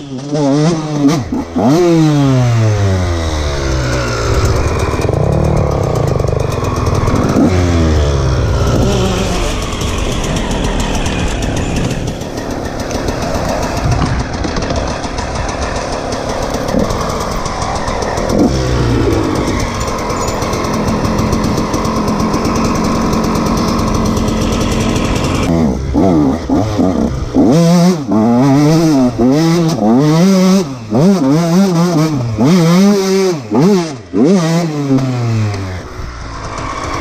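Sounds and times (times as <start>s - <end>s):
motocross engine revving: 0.0s - 37.0s.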